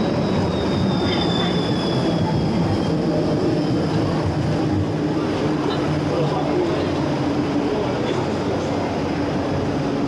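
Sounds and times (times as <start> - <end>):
high wheel squeal: 0.0 - 4.0
tram rumbling past: 0.0 - 10.0.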